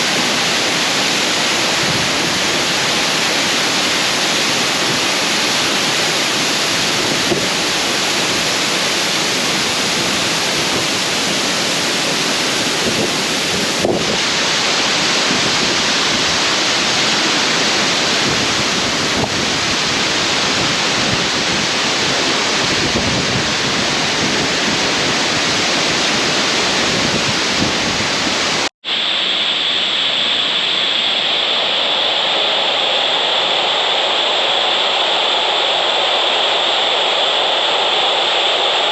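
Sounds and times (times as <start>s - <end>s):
waterfall rushing: 0.0s - 30.9s.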